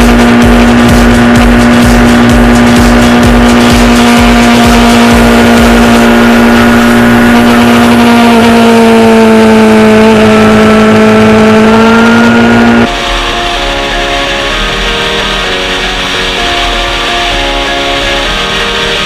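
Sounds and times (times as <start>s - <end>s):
motorcycle engine at high revs: 0.0s - 19.0s
second engine note sliding down: 0.0s - 19.0s.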